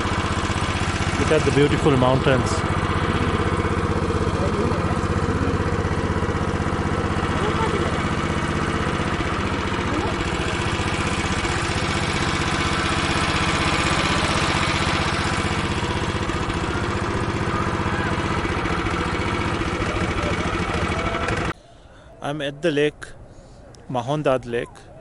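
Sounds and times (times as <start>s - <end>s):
jeep engine running: 0.0s - 21.9s.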